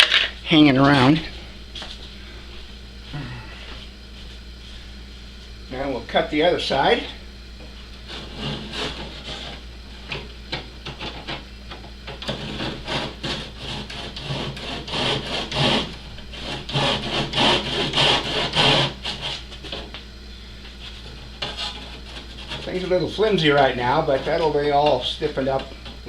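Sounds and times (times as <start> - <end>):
small saw rasping: 8.1 - 9.6, 12.2 - 19.9, 21.0 - 22.9.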